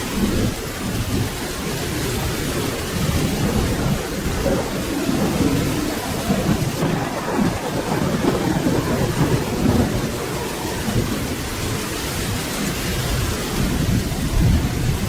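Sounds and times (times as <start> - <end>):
rolling thunder rumble: 0.0 - 15.0
steady rain: 0.0 - 15.0.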